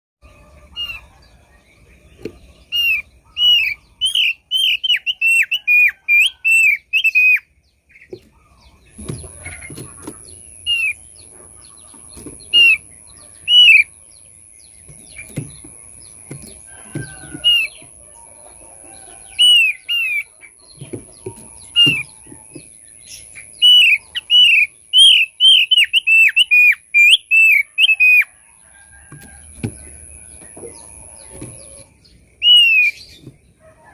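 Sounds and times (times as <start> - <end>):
bird singing whistled notes: 0.3 - 7.5, 12.6 - 13.9, 19.3 - 20.3, 23.1 - 28.4, 32.4 - 33.2.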